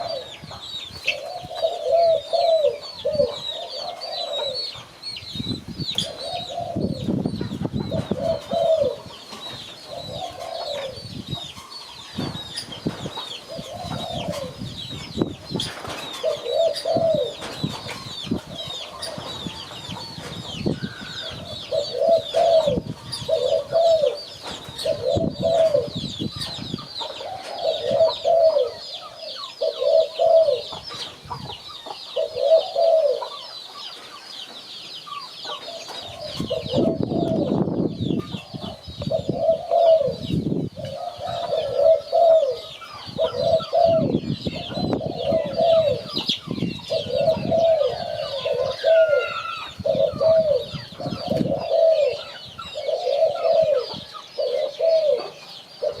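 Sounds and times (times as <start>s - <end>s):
doves cooing: 0.0s - 5.1s, 5.9s - 34.2s, 35.1s - 56.0s
continuous high chirping: 0.0s - 56.0s.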